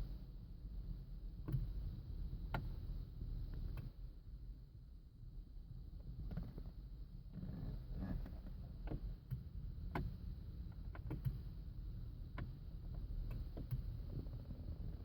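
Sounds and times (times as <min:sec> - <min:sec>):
sharp clicking from car: 0:01.3 - 0:04.0, 0:07.8 - 0:15.0.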